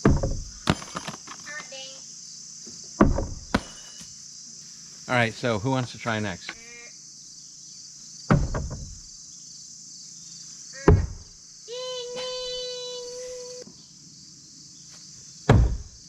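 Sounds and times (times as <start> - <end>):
blades thudding into wood: 0.0 - 1.4, 3.0 - 4.1, 8.3 - 9.0, 10.8 - 11.3, 15.5 - 16.0
crickets chirring: 0.0 - 16.0.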